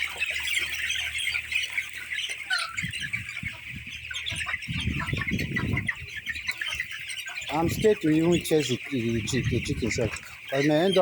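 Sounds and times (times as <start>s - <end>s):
poultry peeping and squawking: 0.0s - 11.0s.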